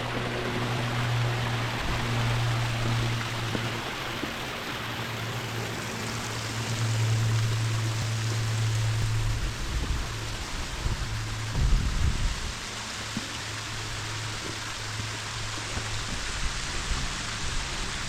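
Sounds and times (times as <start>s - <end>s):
falling water rushing: 0.0s - 18.0s
low steady hum: 0.0s - 18.0s.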